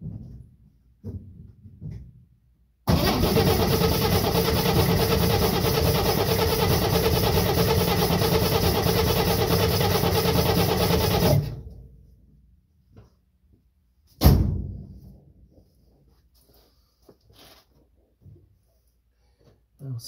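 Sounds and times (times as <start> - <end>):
engine cranking by starter: 2.9 - 11.8.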